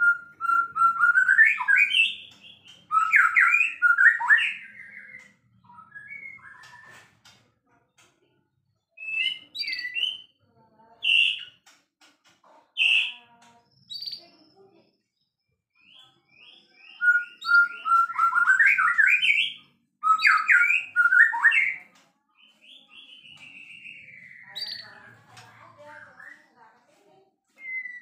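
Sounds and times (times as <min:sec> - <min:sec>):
bird singing whistled phrases: 0:00.0 - 0:07.1, 0:09.0 - 0:10.3, 0:15.8 - 0:21.8, 0:27.6 - 0:28.0.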